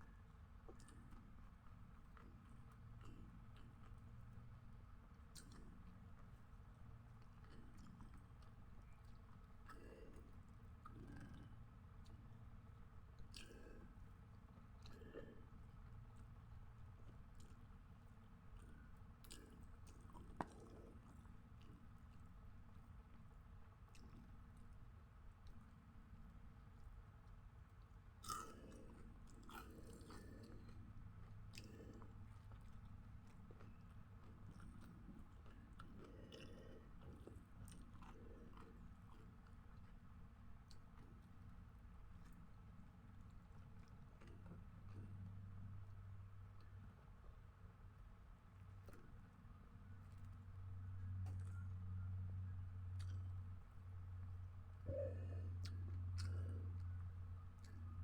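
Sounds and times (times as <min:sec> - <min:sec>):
chewing food: 0:00.0 - 0:58.0
low room hum: 0:00.0 - 0:58.0
wet mouth clicks: 0:09.0 - 0:12.2, 0:53.0 - 0:53.4, 0:54.9 - 0:57.0.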